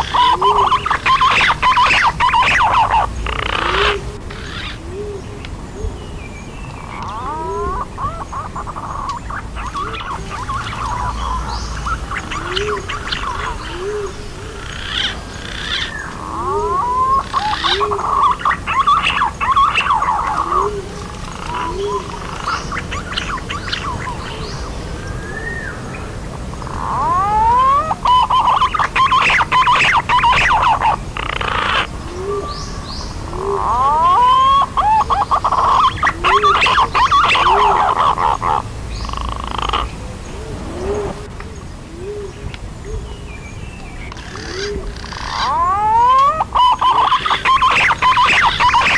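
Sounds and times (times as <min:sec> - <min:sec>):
pigeons whistling and chattering: 0:00.0 - 0:06.0, 0:06.8 - 0:48.9
low hooting notes: 0:35.4 - 0:43.0.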